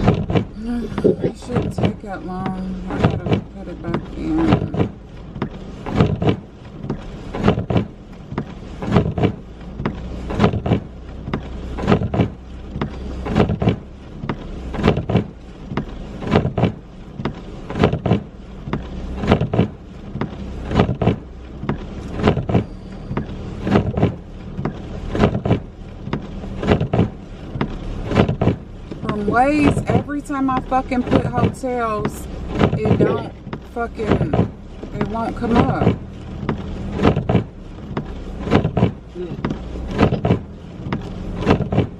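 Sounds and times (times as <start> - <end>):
road and engine rumble: 0.0 - 41.9
windshield wipers thumping: 0.0 - 41.9.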